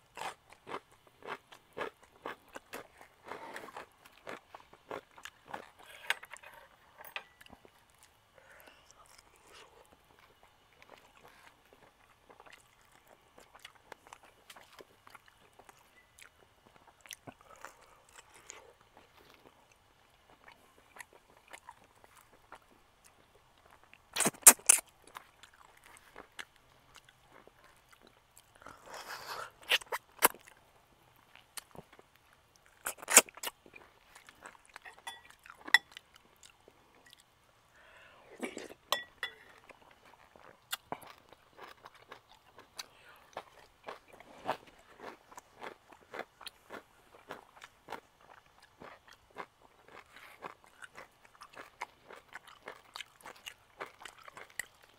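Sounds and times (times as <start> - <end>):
chewing grilled food: 0.0 - 54.9
wet mouth clicks: 24.2 - 24.8.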